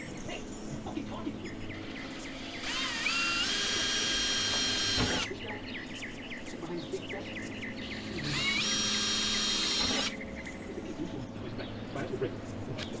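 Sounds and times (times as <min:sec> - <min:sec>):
cordless drill whining: 0:02.6 - 0:05.3, 0:08.3 - 0:10.1.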